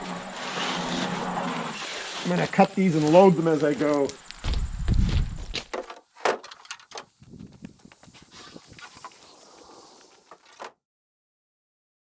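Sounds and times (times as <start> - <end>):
footsteps: 4.3 - 10.7
wooden knocks and scrapes: 4.5 - 10.7.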